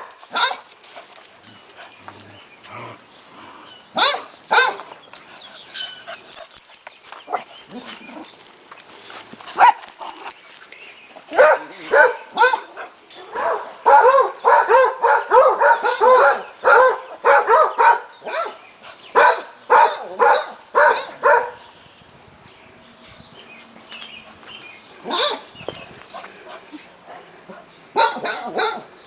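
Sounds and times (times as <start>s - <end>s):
dogs barking: 0.0s - 0.7s, 3.9s - 4.9s, 9.5s - 10.4s, 11.2s - 21.7s, 25.0s - 25.5s, 26.1s - 29.0s.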